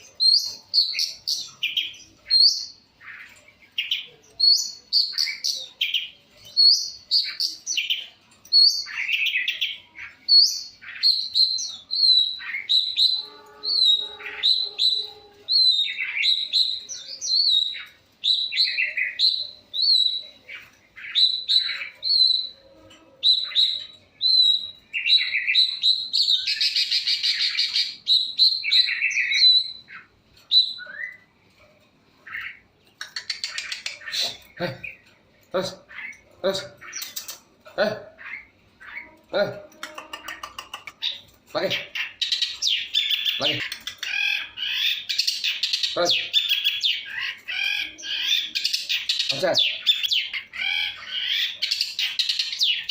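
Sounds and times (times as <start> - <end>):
bird chirping: 0.0 - 52.9
harsh scratchy bird call: 10.8 - 23.8, 32.3 - 34.6, 39.8 - 52.9.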